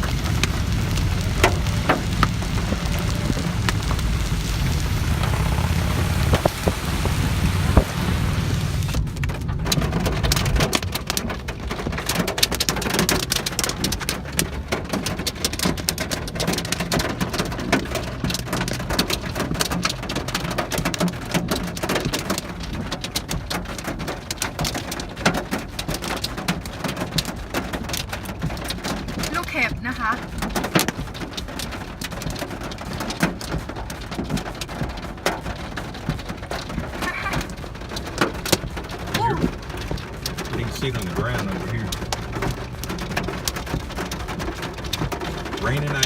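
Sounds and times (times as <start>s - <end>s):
low rumble: 0.0s - 11.6s
hail and rain clattering: 0.0s - 46.0s.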